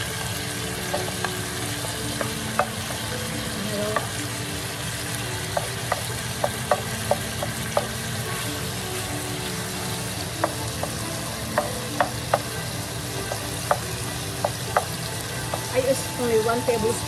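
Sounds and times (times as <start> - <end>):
chicken sizzling in oil: 0.0 - 17.0
spatula tapping pan: 0.7 - 3.2, 3.9 - 4.2, 5.4 - 8.0, 9.9 - 12.6, 13.2 - 15.8.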